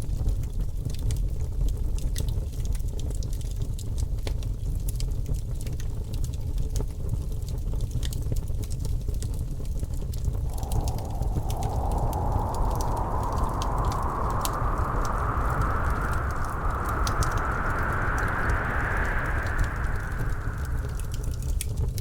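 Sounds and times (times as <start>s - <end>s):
deep rumble: 10.4s - 22.0s
wood fire crackling: 10.5s - 21.7s.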